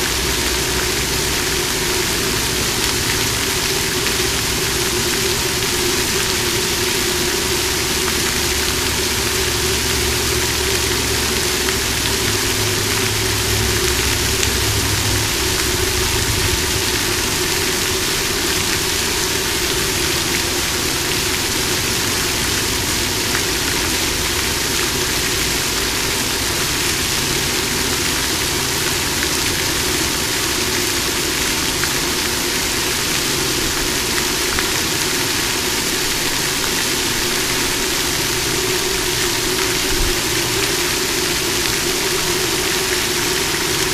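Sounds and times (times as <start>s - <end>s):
low hum: 0.0s - 25.4s
fountain water splashing: 0.0s - 43.9s.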